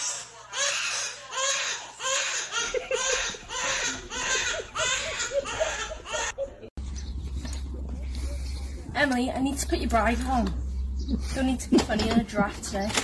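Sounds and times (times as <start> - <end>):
high-pitched breathy laughter: 1.0 - 6.7.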